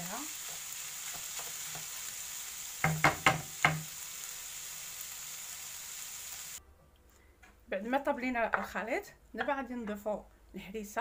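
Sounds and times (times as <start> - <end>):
filling sizzling in a frying pan: 0.0 - 6.6.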